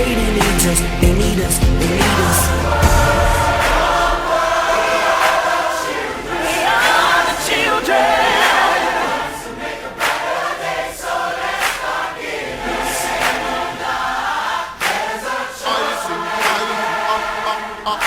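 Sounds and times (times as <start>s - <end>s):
band accompaniment: 0.0s - 4.0s
choir singing pop ballad: 0.0s - 18.0s.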